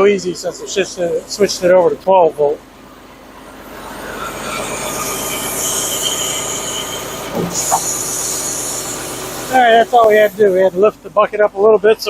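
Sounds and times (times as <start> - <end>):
high-pitched squeal: 3.8 - 10.2.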